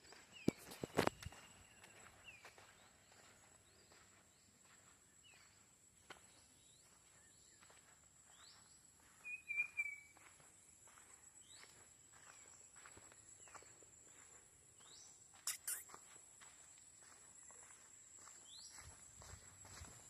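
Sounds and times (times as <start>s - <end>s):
footsteps on forest floor: 0.0s - 9.4s, 10.2s - 20.0s
short bird chirps: 15.4s - 16.0s.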